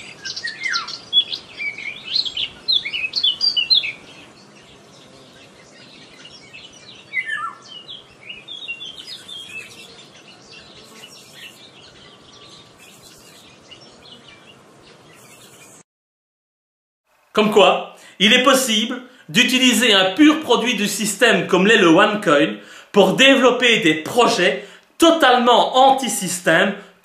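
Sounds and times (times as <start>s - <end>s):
birds chirping and calling: 0.0s - 15.8s
steady background hiss: 0.0s - 15.8s, 17.1s - 27.0s.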